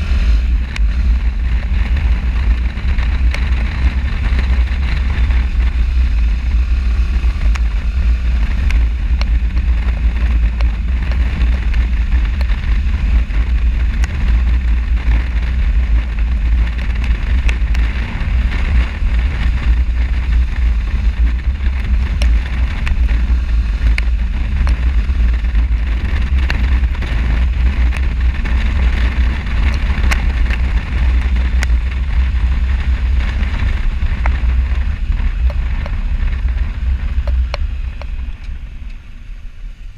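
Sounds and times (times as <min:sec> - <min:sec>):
motorcycle running: 0:00.0 - 0:39.9
wind rumble on microphone: 0:00.0 - 0:39.9.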